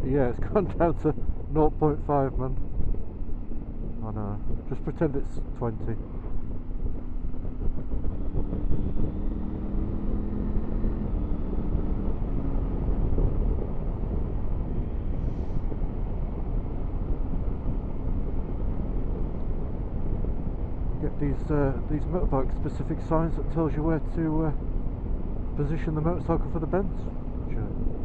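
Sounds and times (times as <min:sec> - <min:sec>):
wind and road noise: 0:00.0 - 0:28.0
motorcycle engine running: 0:06.0 - 0:15.0.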